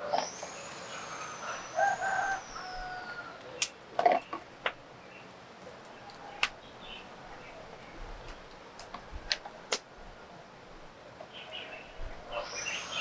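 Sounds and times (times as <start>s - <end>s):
birds calling: 0.0s - 8.0s, 11.2s - 13.0s.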